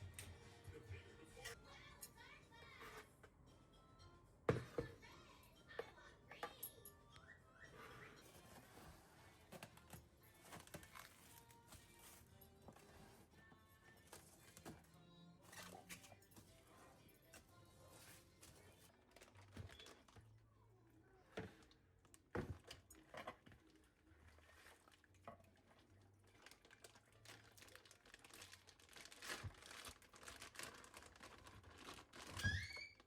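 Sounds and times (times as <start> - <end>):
crinkling and rustling: 8.1 - 33.0.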